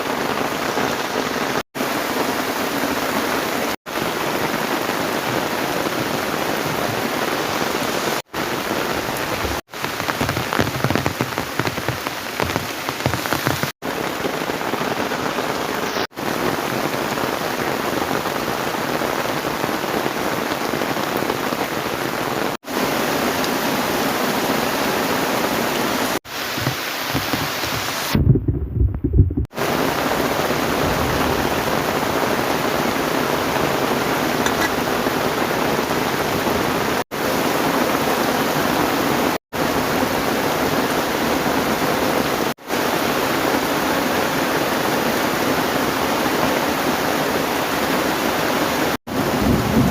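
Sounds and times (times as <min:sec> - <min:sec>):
heavy rain pouring: 0:00.0 - 0:49.9
short low rumble: 0:28.1 - 0:29.5.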